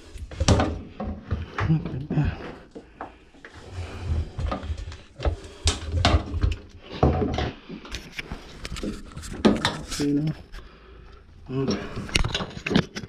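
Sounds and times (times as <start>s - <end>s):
knocks and clunks in washer tub: 0.3s - 2.3s, 4.2s - 7.6s.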